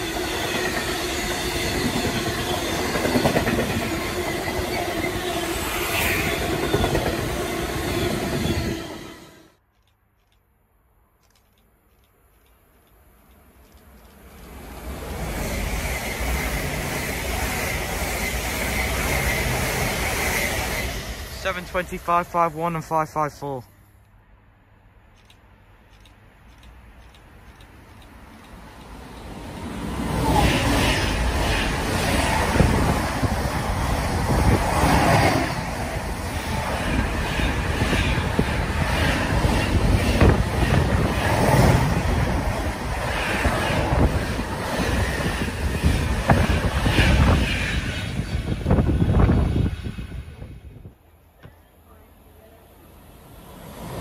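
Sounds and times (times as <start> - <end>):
train passing at speed: 0.0 - 9.6, 13.7 - 25.0, 25.6 - 51.1, 51.8 - 54.0
sharp clicks: 11.2 - 14.6, 25.1 - 29.0.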